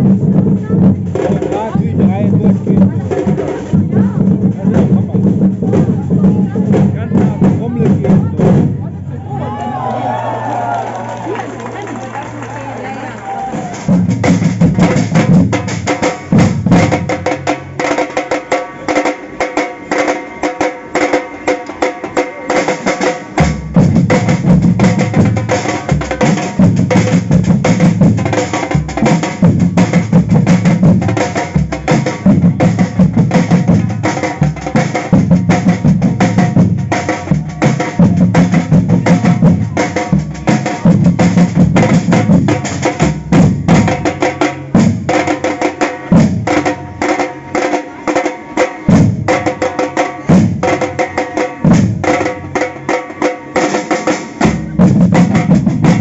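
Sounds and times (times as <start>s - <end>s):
samba percussion band: 0.0s - 10.0s, 11.2s - 56.0s
deep bass drums: 0.0s - 10.6s, 13.4s - 17.8s, 23.4s - 45.4s, 54.4s - 56.0s.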